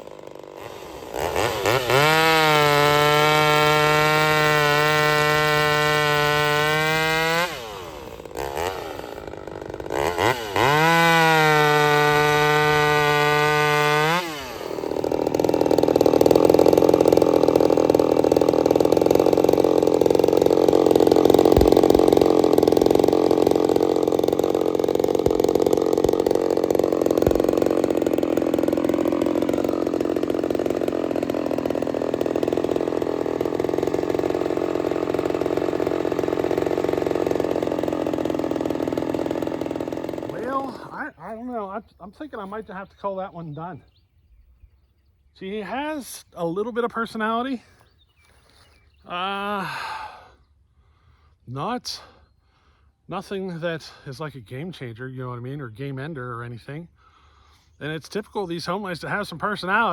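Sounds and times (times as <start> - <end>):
chainsaw cutting wood: 0.0 - 41.7, 58.5 - 59.9
chainsaw revving: 0.0 - 41.8, 49.1 - 50.4, 55.4 - 59.9.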